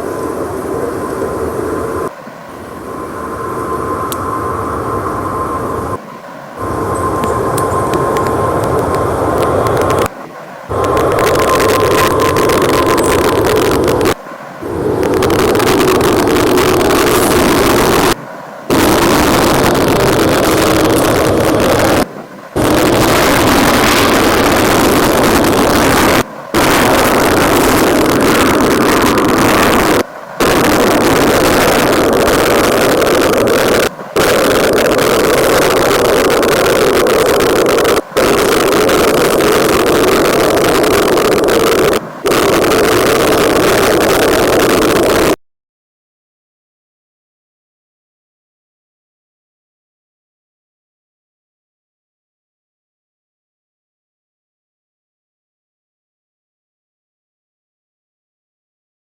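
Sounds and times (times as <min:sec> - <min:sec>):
jet engines roaring: 0:00.0 - 0:45.4.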